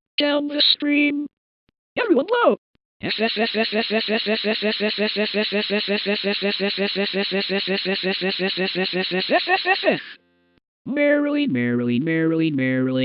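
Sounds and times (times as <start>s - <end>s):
cartoon buzzy trill: 3.0s - 10.2s.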